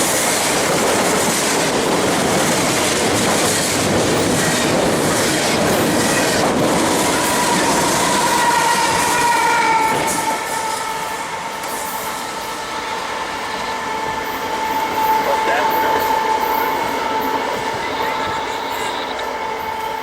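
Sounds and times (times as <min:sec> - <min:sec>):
steel wheels clattering on rails: 0:00.0 - 0:12.2
freight train rumbling past: 0:00.0 - 0:20.0
high wheel squeal: 0:07.0 - 0:20.0.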